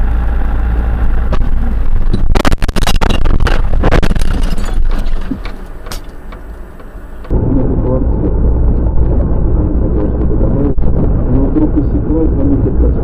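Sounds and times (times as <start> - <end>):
car engine and road noise: 0.0 - 13.0
car crash impacts and clatter: 1.3 - 6.2.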